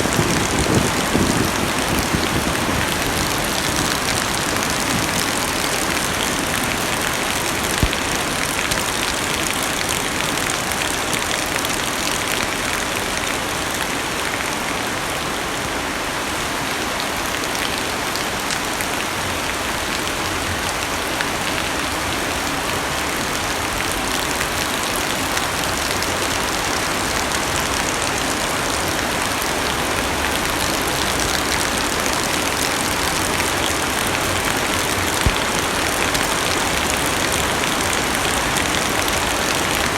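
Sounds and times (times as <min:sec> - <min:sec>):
heavy rain on car roof: 0:00.0 - 0:13.2, 0:17.4 - 0:39.9
raindrop taps: 0:35.1 - 0:35.7.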